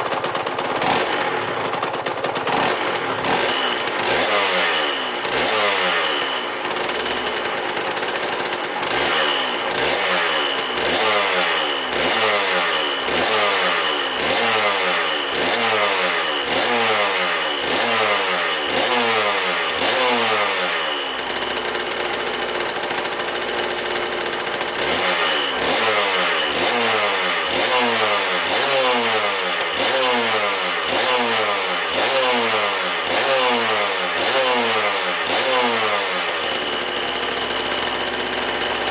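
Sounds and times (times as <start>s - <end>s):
two-stroke engine revving: 0.0s - 38.9s.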